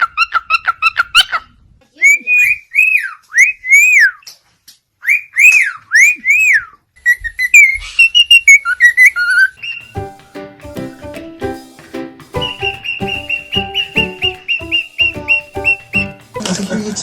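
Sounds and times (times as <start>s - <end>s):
bird whistling: 2.0s - 4.3s, 5.0s - 10.1s, 12.4s - 16.4s
bird chirps and trills: 5.0s - 10.1s, 12.4s - 16.4s
music: 9.6s - 17.0s.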